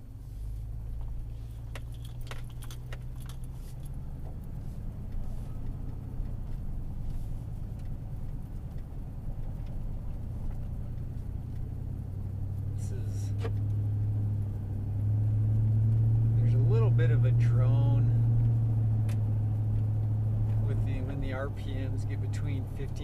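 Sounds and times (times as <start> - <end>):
truck engine rumbling: 0.0 - 23.0
sharp clicks and jingles: 1.5 - 4.1.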